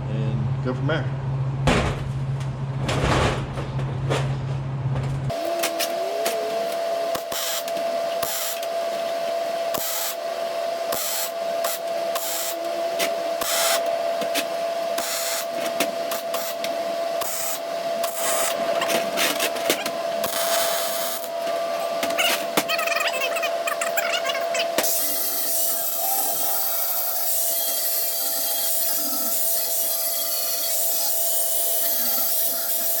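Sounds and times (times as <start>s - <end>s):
steady welder hum: 4.8s - 33.0s
arc welder crackling and sputtering: 5.2s - 33.0s.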